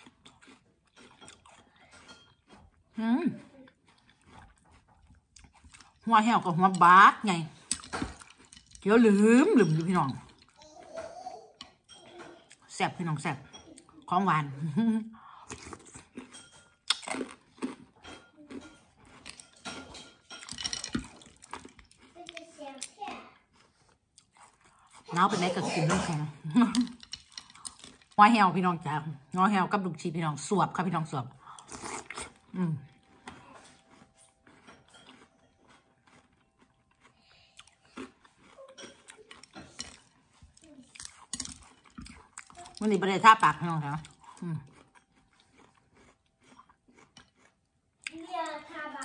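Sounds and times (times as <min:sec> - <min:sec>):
crunchy chewing: 0:00.0 - 0:08.9, 0:15.2 - 0:25.2, 0:31.4 - 0:48.7.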